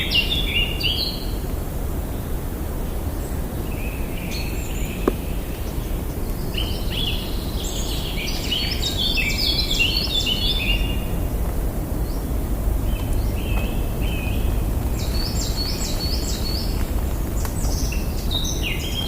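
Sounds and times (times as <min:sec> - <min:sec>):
birds singing and chirping: 0:00.0 - 0:01.4, 0:02.9 - 0:19.0
steady low rumble: 0:01.4 - 0:19.0.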